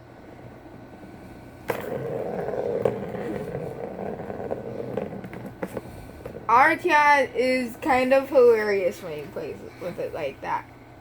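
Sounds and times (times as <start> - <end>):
ball rolling in cat toy: 0.3 - 6.9.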